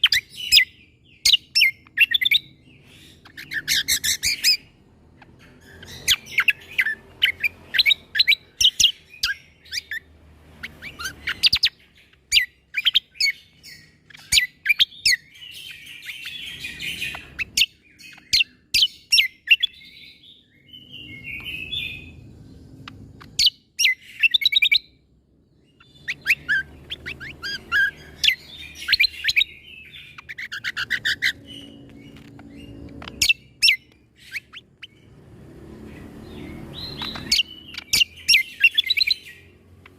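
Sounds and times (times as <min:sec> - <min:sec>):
bird singing sharp clipped notes: 0:35.9 - 0:39.9.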